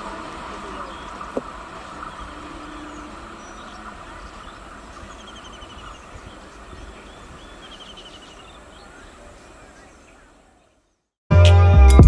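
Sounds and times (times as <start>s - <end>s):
train rumbling: 0.0s - 8.7s
bird trilling: 0.0s - 10.8s.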